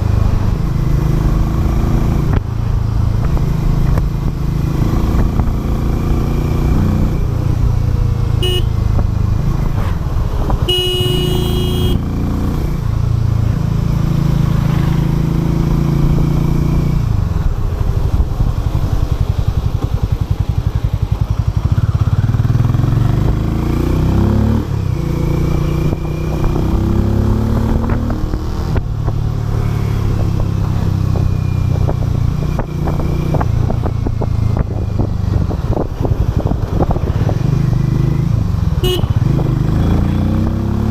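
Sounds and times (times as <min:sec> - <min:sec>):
motorcycle engine running: 0:00.0 - 0:40.9
short horn beep: 0:08.4 - 0:08.7, 0:10.7 - 0:12.0, 0:38.8 - 0:39.2.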